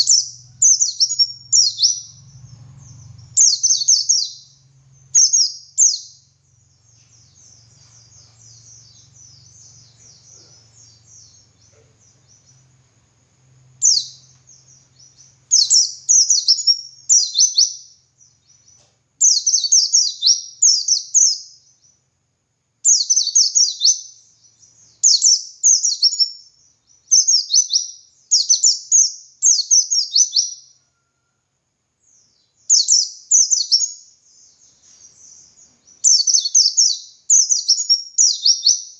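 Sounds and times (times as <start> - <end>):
white-eye bird singing: 0.0 - 22.2, 22.8 - 31.4, 32.0 - 38.9.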